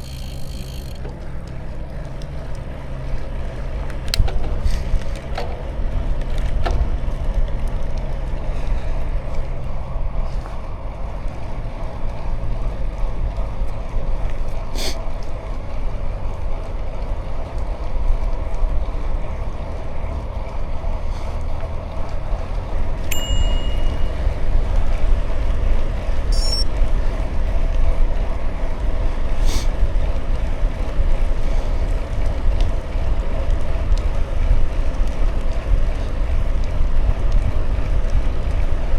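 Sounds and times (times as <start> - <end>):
bicycle tyres rolling: 0.0 - 38.9
wind rumbling on microphone: 0.0 - 38.9
brief high tone: 23.1 - 24.4, 26.4 - 26.7.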